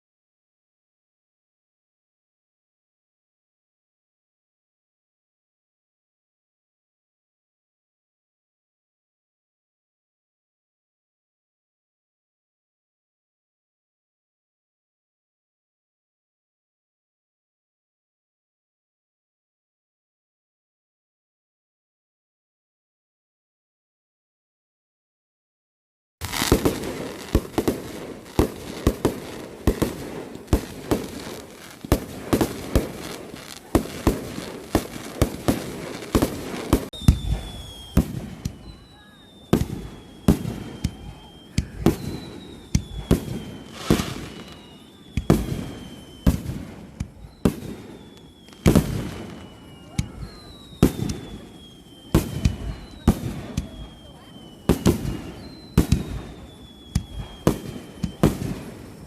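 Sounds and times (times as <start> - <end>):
fireworks bangs and crackles: 26.2 - 59.0
high firework whistle: 26.2 - 59.0.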